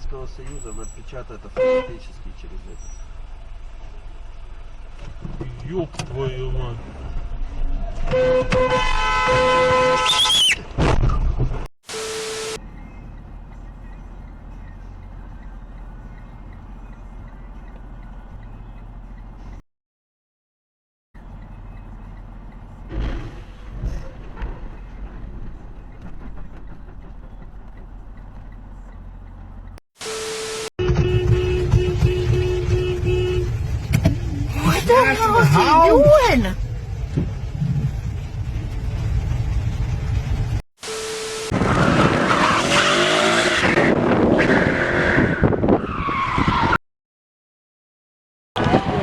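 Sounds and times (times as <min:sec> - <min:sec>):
vehicle engine rumbling: 0:00.0 - 0:19.6, 0:21.2 - 0:46.7
car tyres skidding and squealing: 0:02.6 - 0:03.3, 0:06.9 - 0:11.3, 0:31.0 - 0:38.2, 0:41.4 - 0:46.8
brief steady tone: 0:11.9 - 0:18.9, 0:30.0 - 0:31.1, 0:40.8 - 0:41.6.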